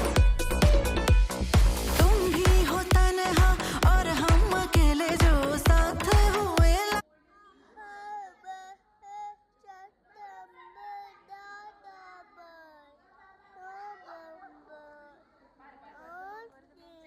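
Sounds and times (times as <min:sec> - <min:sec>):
loud dance music: 0:00.0 - 0:07.0
high child-like voice singing: 0:07.8 - 0:15.2.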